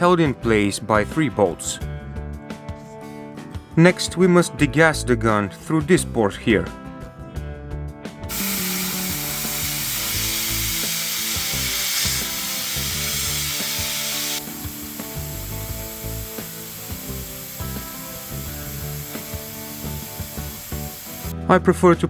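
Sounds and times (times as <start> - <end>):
compressed air hissing: 8.3 - 21.3.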